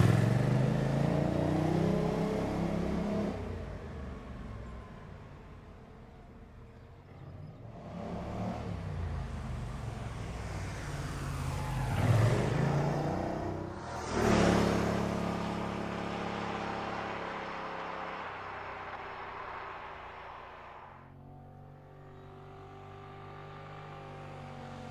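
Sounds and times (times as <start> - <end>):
car engine accelerating: 7.8 - 24.9.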